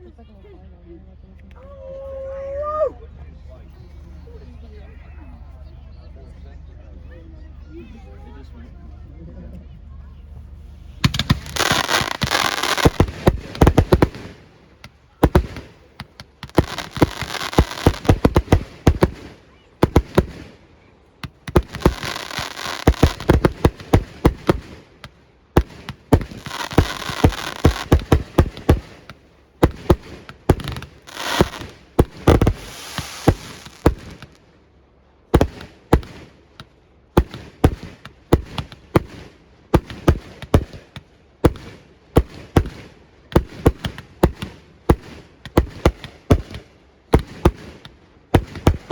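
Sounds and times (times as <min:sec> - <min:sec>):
fireworks crackling hiss: 0:10.6 - 0:34.6, 0:35.3 - 0:48.9
fireworks bangs: 0:10.8 - 0:34.5, 0:35.3 - 0:48.9.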